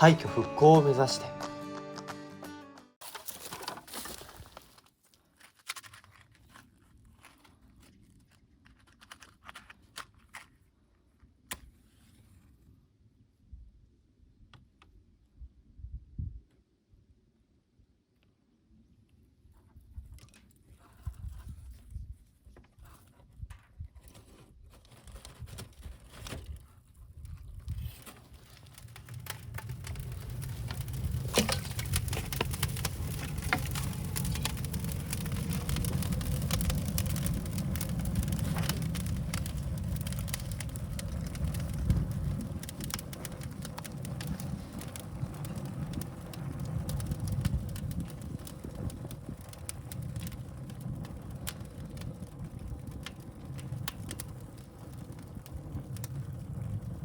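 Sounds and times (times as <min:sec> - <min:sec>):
bamboo crackling and popping: 0:03.0 - 0:11.8, 0:22.5 - 0:57.0
fire roaring: 0:27.3 - 0:57.0.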